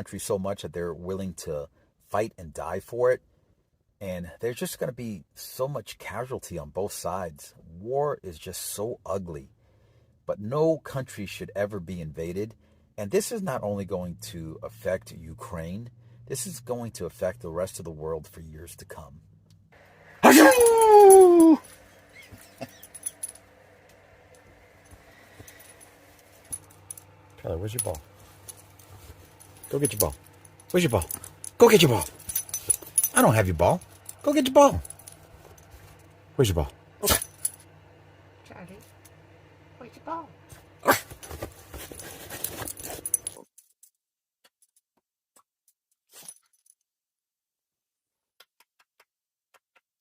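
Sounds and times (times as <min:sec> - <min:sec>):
dog crying: 0:20.2 - 0:21.6
short rustle: 0:25.4 - 0:36.0
dog moving and making noises: 0:40.9 - 0:43.4.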